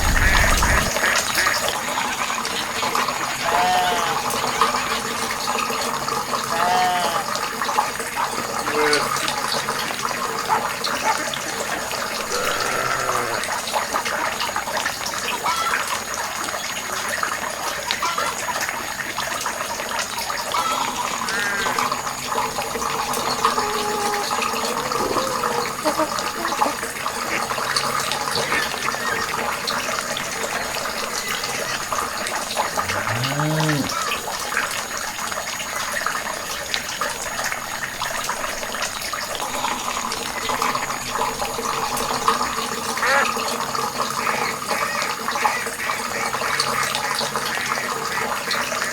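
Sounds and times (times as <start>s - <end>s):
voice-like calls: 0.0s - 1.8s, 3.2s - 5.1s, 8.3s - 13.7s, 20.4s - 34.3s
water running: 0.0s - 48.9s.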